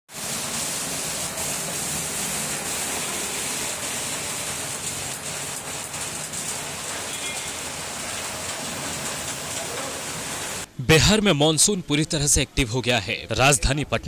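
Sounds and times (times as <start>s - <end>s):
rain hissing: 0.1s - 10.7s
floodwater running through street: 0.1s - 10.8s.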